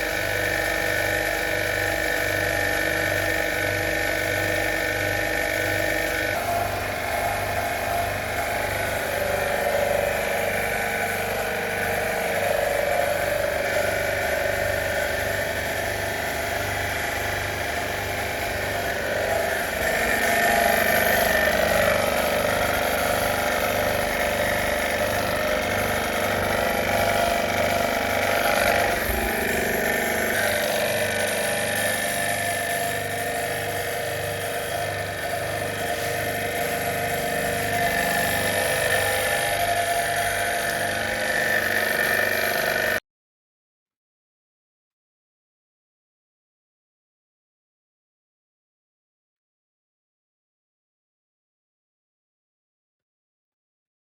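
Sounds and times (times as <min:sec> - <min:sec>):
pump motor pulsing: 0:00.0 - 0:43.0.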